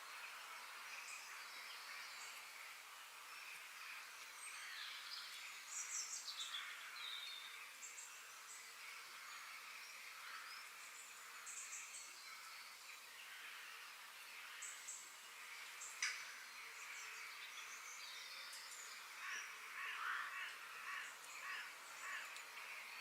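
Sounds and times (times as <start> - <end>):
faint outdoor ambience hiss: 0.0 - 23.0
songbirds chirping: 0.0 - 23.0.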